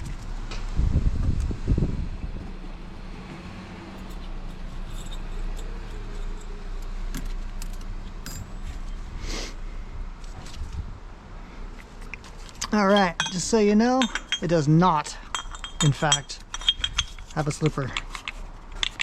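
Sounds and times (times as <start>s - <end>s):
metal parts clinking and rattling: 3.9s - 9.0s, 15.3s - 17.6s.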